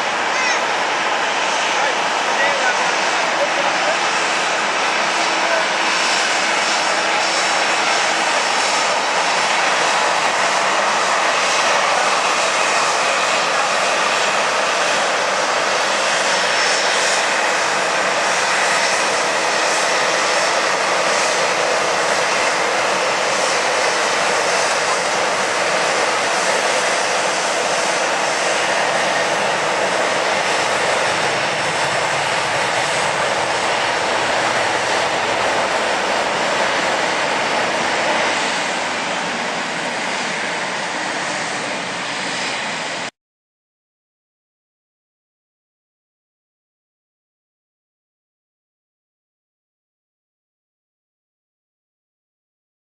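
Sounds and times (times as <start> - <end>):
jet engines roaring: 0.0 - 43.2.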